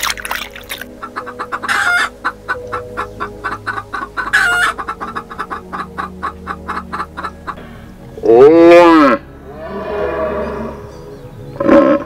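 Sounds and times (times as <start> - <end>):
hen clucking: 0.6 - 7.6
hen squawking: 0.7 - 7.6.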